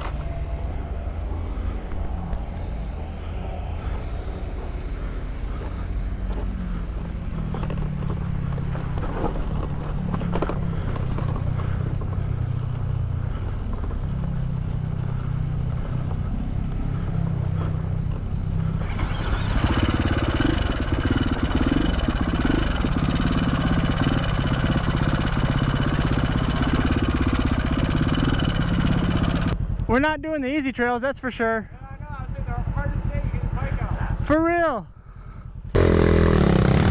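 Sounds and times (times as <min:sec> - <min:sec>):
dirt bike engine revving: 0:05.6 - 0:29.6, 0:35.7 - 0:36.9.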